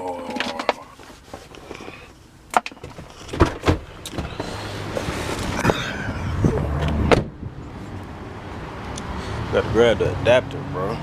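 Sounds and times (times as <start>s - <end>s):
heavy thumps: 6.4s - 7.6s.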